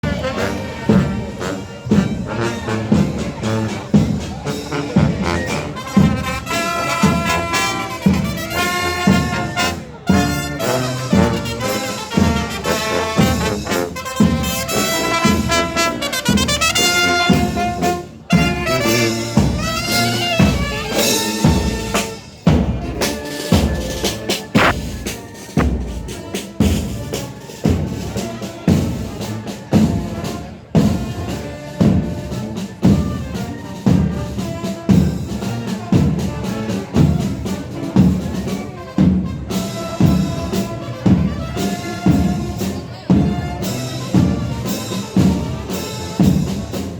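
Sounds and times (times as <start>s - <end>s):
trumpets and trombones playing: 0.0s - 29.4s
steady drum beat: 0.0s - 38.4s.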